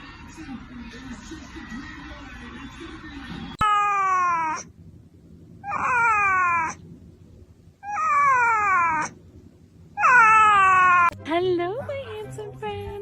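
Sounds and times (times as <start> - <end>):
cat meowing: 3.6 - 4.7, 5.6 - 6.8, 7.8 - 9.2, 10.0 - 11.2.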